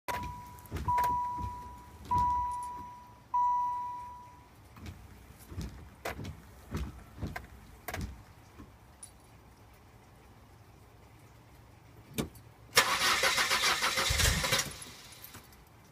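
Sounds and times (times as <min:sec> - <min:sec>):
car warning chime dings: 0:00.1 - 0:04.6
keys and controls clicking: 0:00.1 - 0:09.2.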